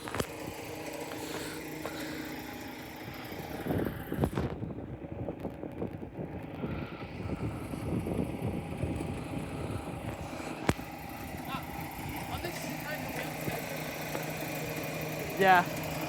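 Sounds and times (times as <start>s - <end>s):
wind buffeting microphone: 2.8s - 13.9s.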